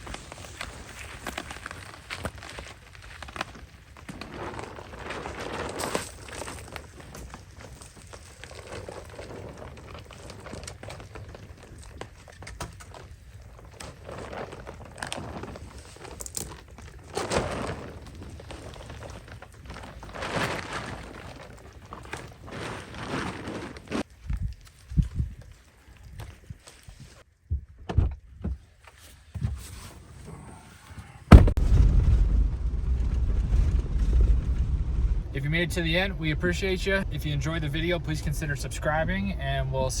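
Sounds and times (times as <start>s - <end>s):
campfire crackles: 0.0s - 23.0s, 31.3s - 40.0s
rustle: 0.0s - 27.2s
vehicle engine starting and running: 31.3s - 40.0s
rain ticking on shelter: 31.5s - 40.0s.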